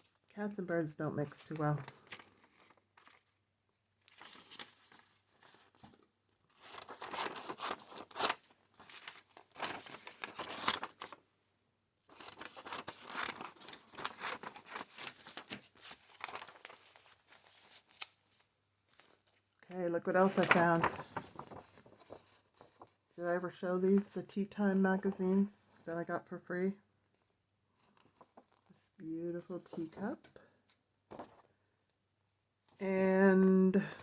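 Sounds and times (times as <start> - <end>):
paper rustling and ripping: 1.3 - 3.4, 4.1 - 11.2, 12.1 - 19.5, 20.2 - 23.0.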